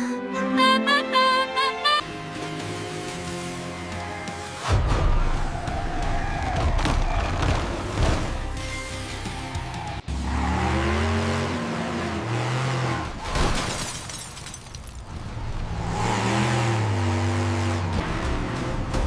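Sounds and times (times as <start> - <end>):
cartoon truck engine revving: 10.0 - 13.3, 15.6 - 19.0.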